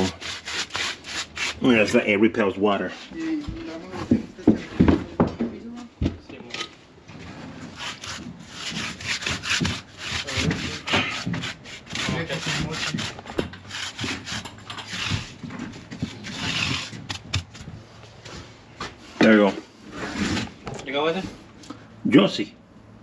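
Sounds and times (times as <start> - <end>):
gritty paint scrubbing strokes: 0.0 - 2.2, 7.2 - 19.2.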